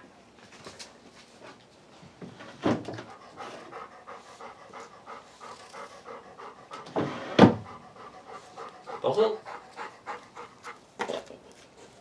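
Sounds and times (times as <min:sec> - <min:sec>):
dog panting: 0:02.9 - 0:12.0.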